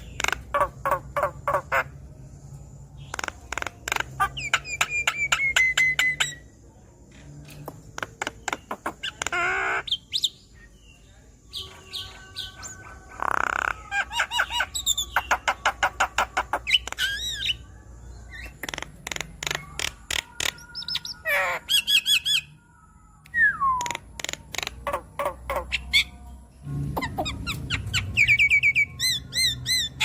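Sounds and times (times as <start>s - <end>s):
myna singing chattering song: 11.5s - 17.7s.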